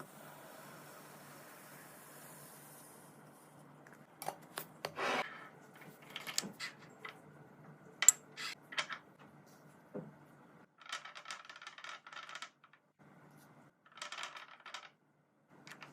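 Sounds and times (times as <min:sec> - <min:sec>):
items clicking and tapping: 0:05.8 - 0:09.4, 0:15.6 - 0:15.9.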